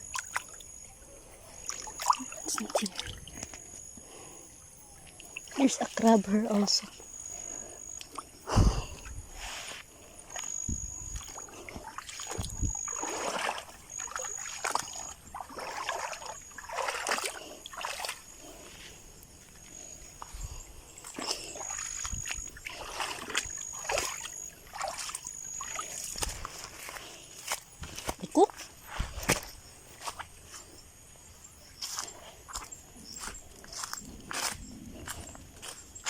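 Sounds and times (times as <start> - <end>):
shallow water splashing: 0.0 - 0.9, 1.5 - 3.7, 7.3 - 27.0.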